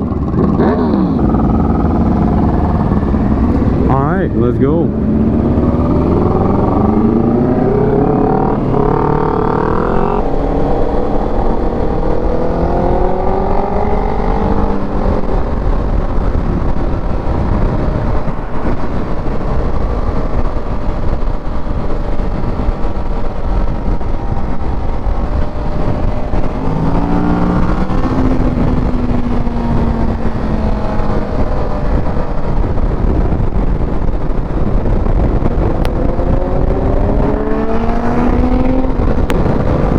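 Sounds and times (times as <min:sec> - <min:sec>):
motorcycle accelerating: 0:00.0 - 0:39.9
wind and road noise: 0:00.0 - 0:39.9.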